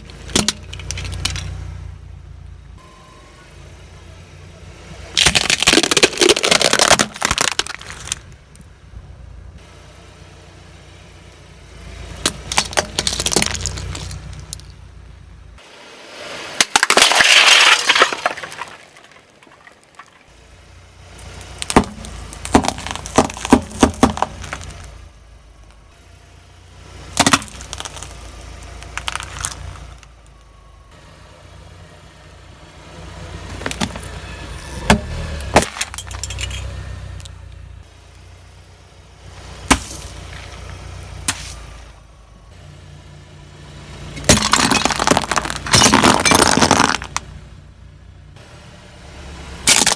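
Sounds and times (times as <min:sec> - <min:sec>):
car engine running low: 0:00.0 - 0:49.9
tyres crushing brittle objects: 0:05.2 - 0:08.3, 0:12.2 - 0:14.7, 0:16.6 - 0:20.3, 0:21.2 - 0:24.9, 0:27.1 - 0:30.1, 0:34.9 - 0:37.3, 0:44.1 - 0:47.3, 0:49.7 - 0:49.9.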